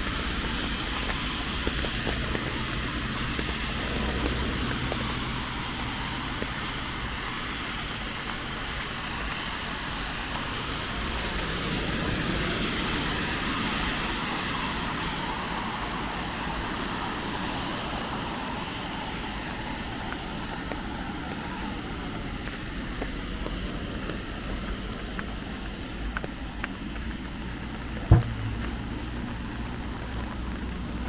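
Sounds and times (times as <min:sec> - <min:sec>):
rain hissing: 0:00.0 - 0:16.1, 0:27.3 - 0:31.0
road traffic: 0:00.0 - 0:31.0
vehicle passing: 0:01.2 - 0:06.8, 0:28.1 - 0:29.7.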